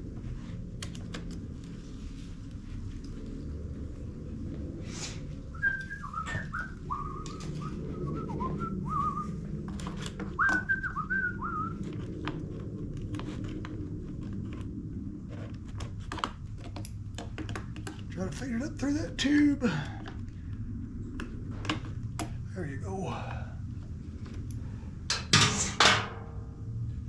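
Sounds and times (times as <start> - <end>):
steady low hum: 0.0 - 27.0
person whistling a tune: 5.6 - 9.3, 10.4 - 11.7.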